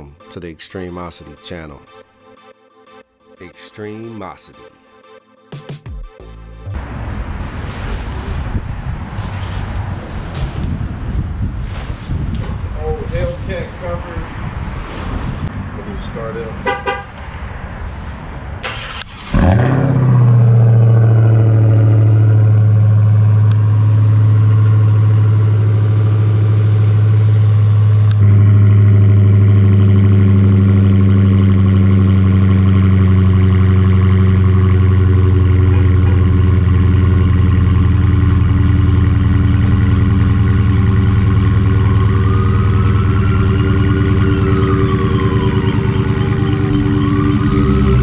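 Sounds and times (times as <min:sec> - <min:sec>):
car engine starting and idling: 0:17.8 - 0:48.0.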